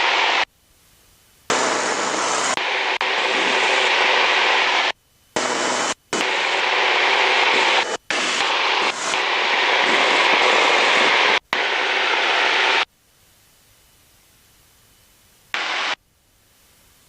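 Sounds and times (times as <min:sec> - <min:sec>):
aircraft engine hiss over radio: 0:01.5 - 0:12.9.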